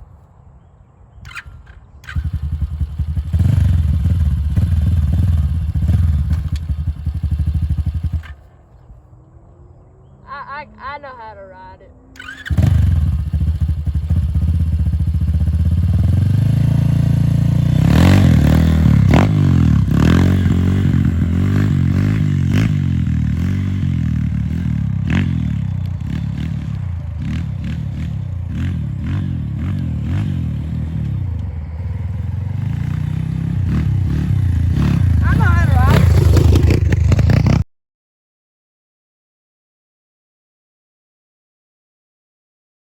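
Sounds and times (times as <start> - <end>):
dirt bike engine revving: 1.3 - 8.4, 12.1 - 37.6.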